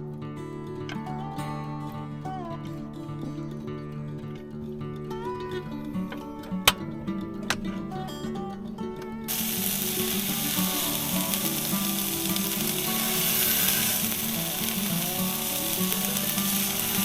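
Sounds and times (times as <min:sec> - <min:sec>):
background music: 0:00.0 - 0:17.0
food sizzling in a frying pan: 0:09.3 - 0:17.0.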